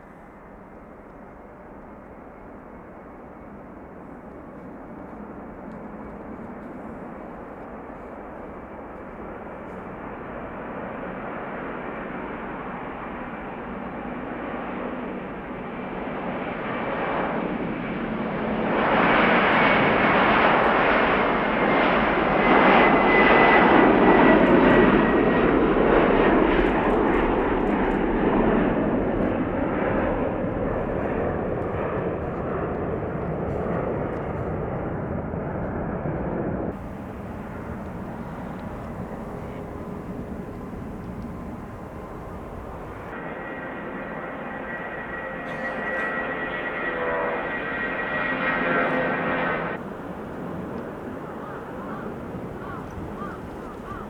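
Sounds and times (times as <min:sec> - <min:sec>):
jet airliner passing: 0:04.9 - 0:54.0
engine whine sliding down: 0:36.8 - 0:44.0.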